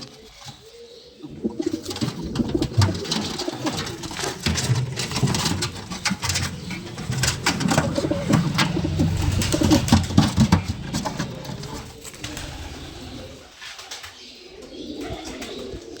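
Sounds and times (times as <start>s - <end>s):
pigeons cooing: 0.0s - 16.0s
wing flutter and clicks: 1.6s - 14.1s.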